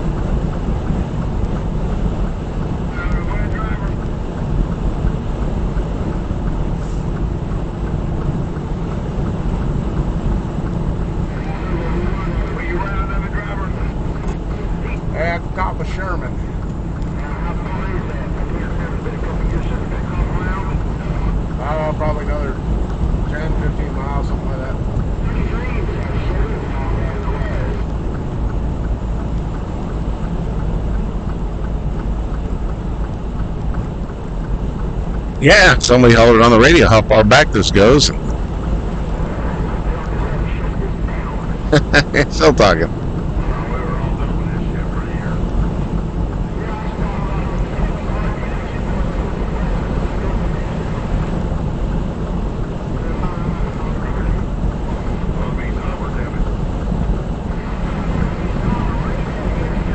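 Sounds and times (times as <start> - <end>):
faint regular ticking: 0.0 - 41.7
road noise: 0.0 - 59.9
truck diesel engine rumble: 0.0 - 59.9.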